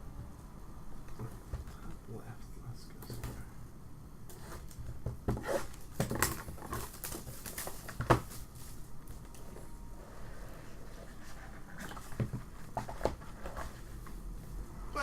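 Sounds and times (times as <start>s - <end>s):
cards and packaging rustling: 5.4s - 9.6s.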